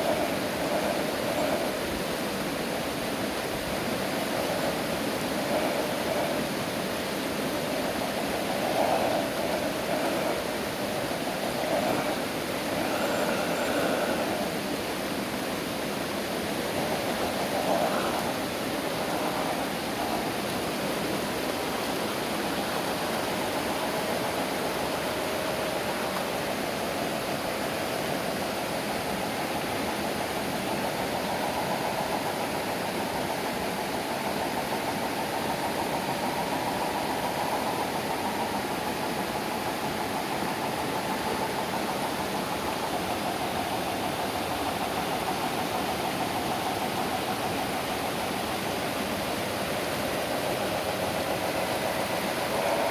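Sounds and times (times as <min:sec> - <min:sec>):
steady rushing noise: 0:00.0 - 0:52.9.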